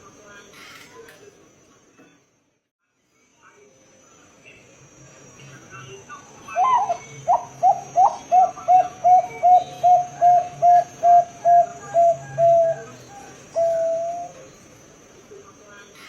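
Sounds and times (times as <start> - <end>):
dove cooing: 6.5 - 14.6.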